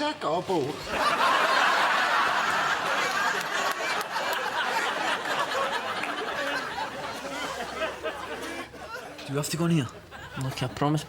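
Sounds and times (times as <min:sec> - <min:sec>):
studio audience laughing: 0:00.8 - 0:09.2.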